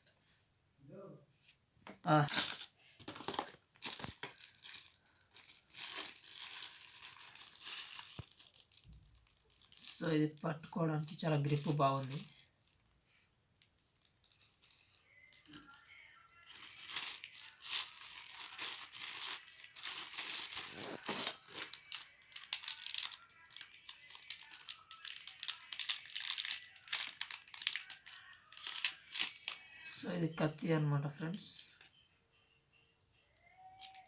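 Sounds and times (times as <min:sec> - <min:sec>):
plastic packaging crinkling: 0:02.1 - 0:31.6, 0:33.6 - 0:34.0.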